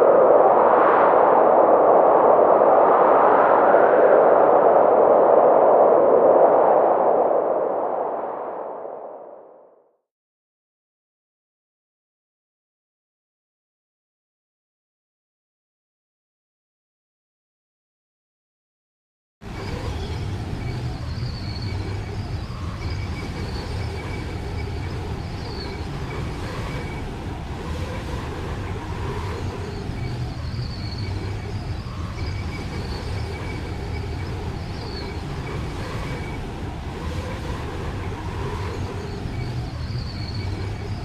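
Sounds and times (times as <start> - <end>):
low rumbling wind: 0.0 - 9.8, 19.4 - 41.0
faint wavering whistle: 19.6 - 27.2, 28.9 - 41.0.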